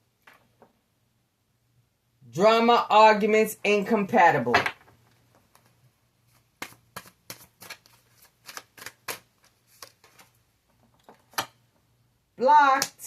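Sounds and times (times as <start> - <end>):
cards being shuffled: 5.4 - 10.4.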